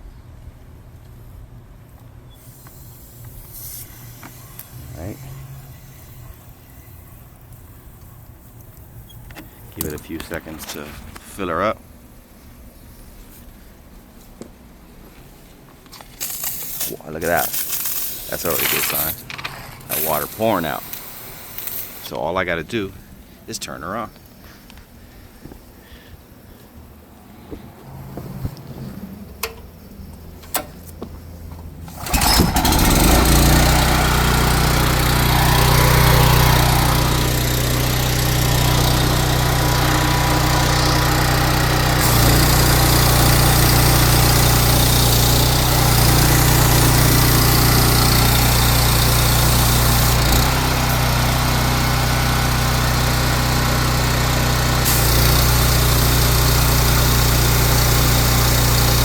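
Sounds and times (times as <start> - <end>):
pressure washer engine running: 16.4 - 22.1, 31.8 - 59.0
high water hiss: 19.8 - 22.3, 54.9 - 58.0.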